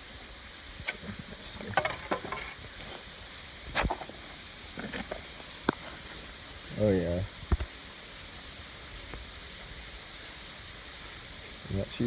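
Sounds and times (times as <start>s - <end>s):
digging dirt and stones: 0.8s - 6.0s.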